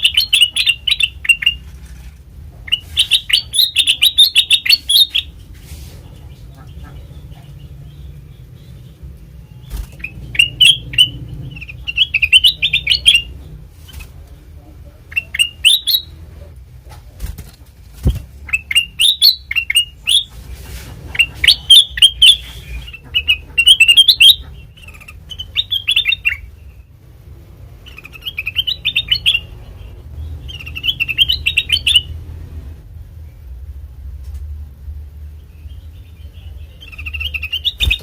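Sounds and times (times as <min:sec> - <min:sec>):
bulbul singing chirpy notes: 0:07.9 - 0:13.4.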